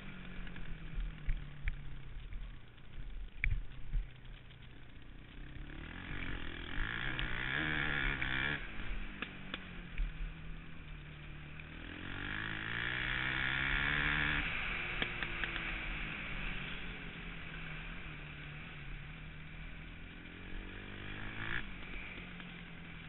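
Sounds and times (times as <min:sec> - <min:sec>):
motorcycle engine revving: 0:00.0 - 0:03.0, 0:03.8 - 0:23.0
wind rumble on microphone: 0:00.6 - 0:04.7.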